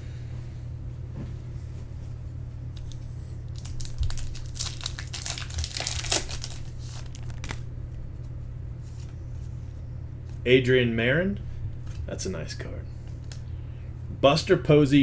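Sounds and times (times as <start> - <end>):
low electrical hum: 0.0 - 15.0
foil wrapper tearing and crinkling: 2.8 - 7.6.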